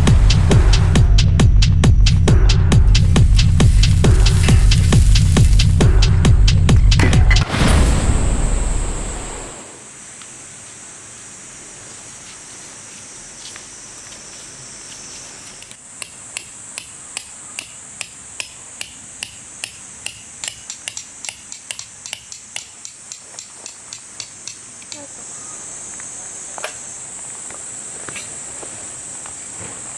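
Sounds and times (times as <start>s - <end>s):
music: 0.0s - 8.3s
high hiss and thin whine: 2.1s - 6.3s, 7.5s - 29.9s.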